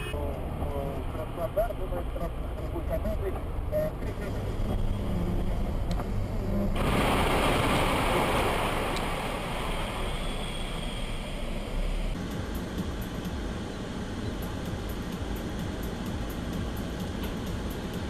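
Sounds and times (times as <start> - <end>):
car road and engine rumble: 0.0 - 18.0
rushing hiss: 6.8 - 12.0.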